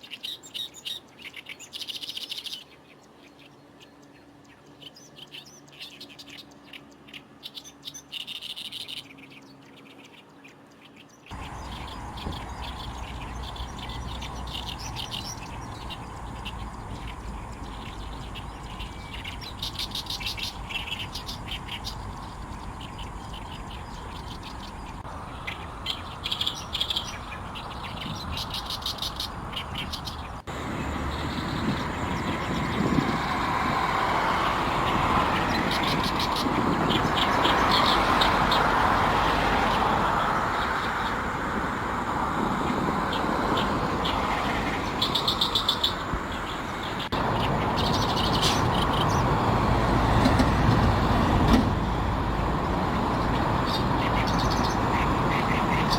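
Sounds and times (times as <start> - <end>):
reed warbler chattering song: 0.0 - 55.9
jet engine roar: 30.2 - 55.9.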